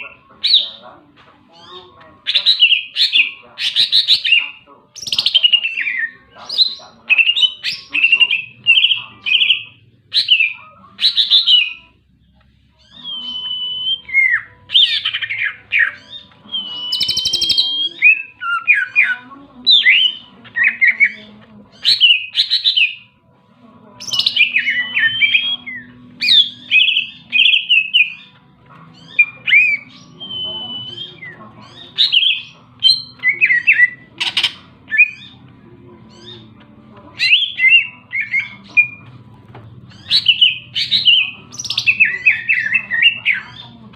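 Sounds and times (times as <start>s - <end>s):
bird singing whistled phrases: 12.8s - 21.2s, 21.8s - 23.0s, 24.0s - 28.3s, 29.0s - 35.4s, 37.2s - 39.0s, 39.9s - 43.6s.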